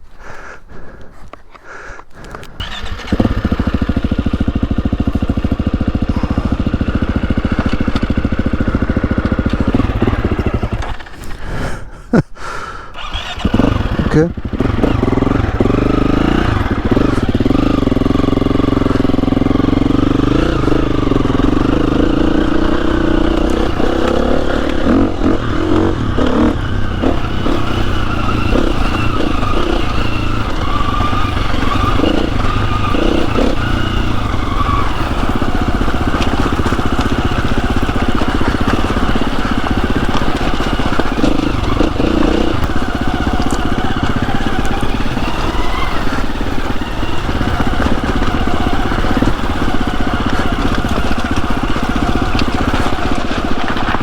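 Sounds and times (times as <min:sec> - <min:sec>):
motorcycle engine revving: 0:02.2 - 0:11.4, 0:12.9 - 0:54.0
knocks and clatter: 0:19.9 - 0:54.0.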